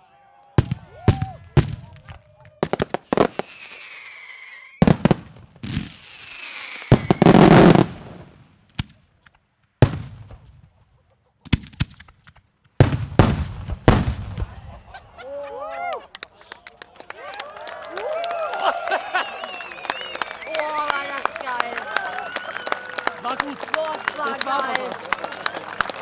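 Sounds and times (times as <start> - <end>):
fireworks bangs: 0.6 - 10.8, 11.4 - 15.2
fireworks crackling: 1.5 - 9.0, 11.5 - 15.0, 16.1 - 26.0
falling firework whistle: 2.6 - 5.2, 5.8 - 7.9, 18.0 - 21.1, 22.0 - 23.1.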